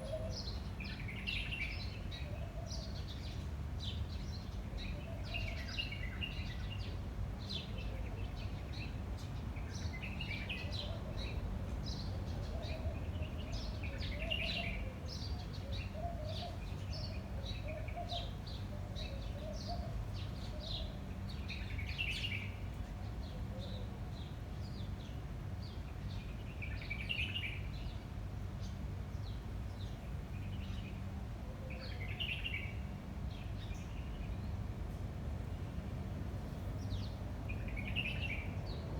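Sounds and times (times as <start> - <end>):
low wind rumble: 33.0 - 38.9.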